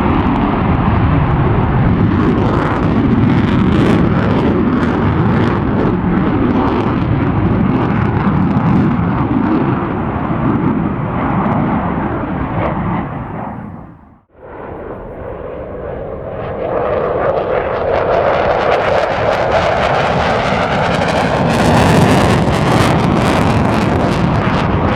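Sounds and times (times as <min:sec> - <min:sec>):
jet afterburner roar: 0:00.0 - 0:24.9.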